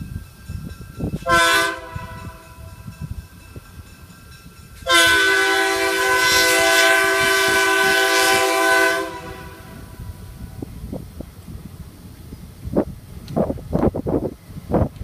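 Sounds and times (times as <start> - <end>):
locomotive air horn: 1.2 - 2.8, 4.8 - 10.0.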